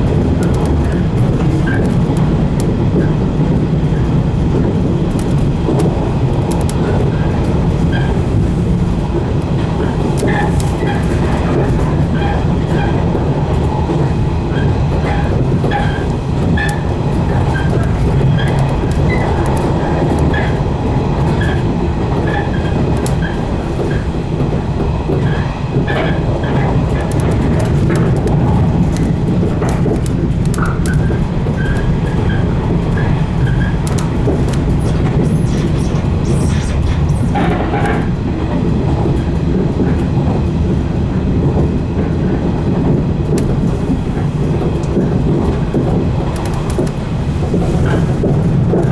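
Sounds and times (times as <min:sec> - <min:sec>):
electric train rumbling: 0:00.0 - 0:48.9
wheels clacking over rail joints: 0:00.0 - 0:48.9.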